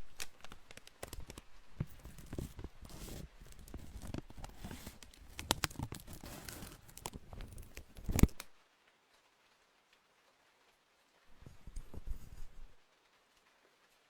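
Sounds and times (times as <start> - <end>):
packaging crinkling and tearing: 0.0 - 8.6
small clicks: 0.0 - 8.6.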